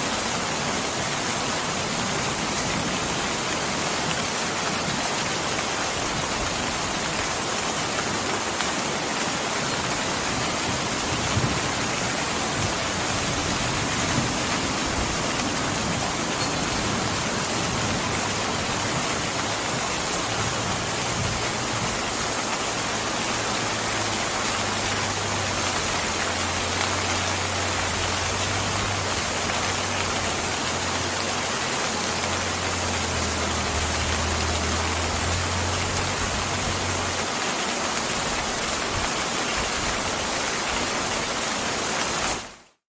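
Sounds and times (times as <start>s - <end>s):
steady rain: 0.0s - 42.8s.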